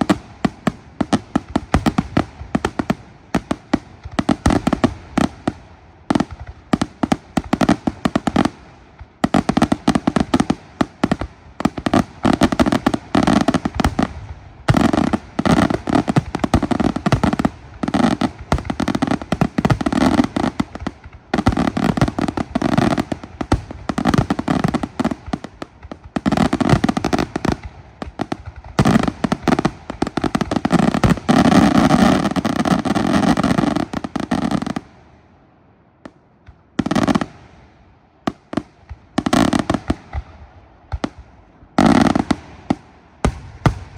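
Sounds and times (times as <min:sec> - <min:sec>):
fireworks bangs and crackling: 0:00.0 - 0:43.9.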